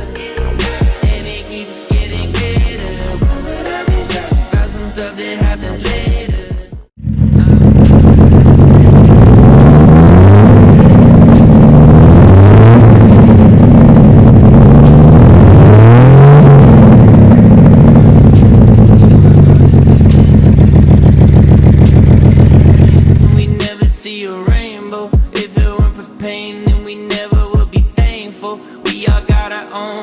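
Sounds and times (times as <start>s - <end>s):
pickup engine revving: 7.0s - 23.7s.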